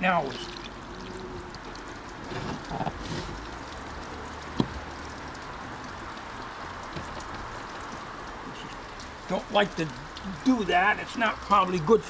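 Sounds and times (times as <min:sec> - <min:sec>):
hose water spraying and splashing: 0:00.0 - 0:12.0.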